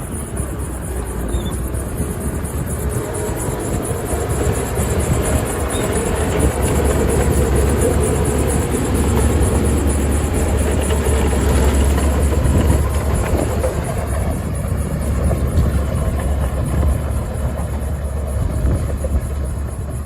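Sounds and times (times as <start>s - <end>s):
diesel earthmoving machinery running: 0.0s - 20.0s.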